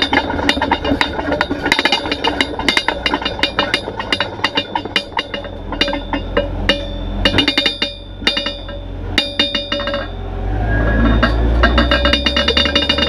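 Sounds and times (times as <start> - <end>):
low rumble: 0.0 - 13.0
sharp ringing percussive strikes: 2.7 - 13.0.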